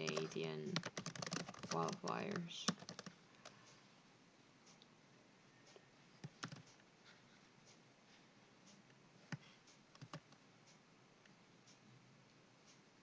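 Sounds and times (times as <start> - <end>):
computer keyboard clicks: 0.0 - 3.6, 6.2 - 6.8, 9.3 - 10.4.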